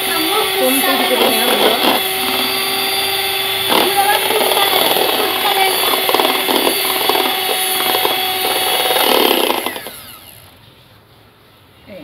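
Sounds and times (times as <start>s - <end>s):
electric hand mixer running: 0.0s - 10.6s.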